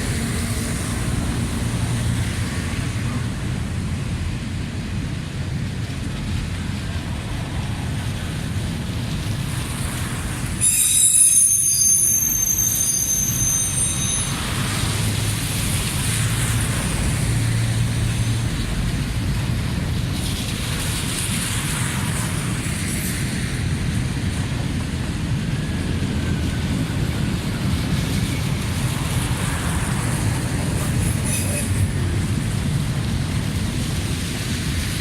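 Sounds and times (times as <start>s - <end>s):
train wheels rumbling on rails: 0.0s - 35.0s
metallic wheel squeal: 10.6s - 14.5s, 31.2s - 31.9s.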